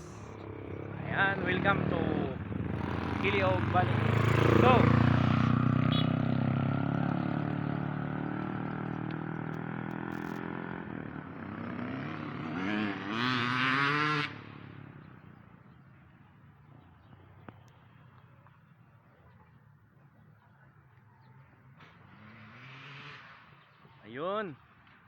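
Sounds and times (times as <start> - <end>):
motorcycle engine revving: 0.0 - 15.8, 21.6 - 23.8.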